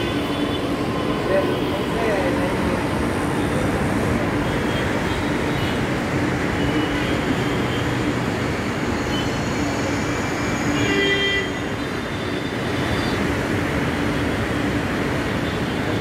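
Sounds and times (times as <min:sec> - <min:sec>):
metro train running noise: 0:00.0 - 0:16.0
high-pitched train squeal: 0:08.8 - 0:13.2.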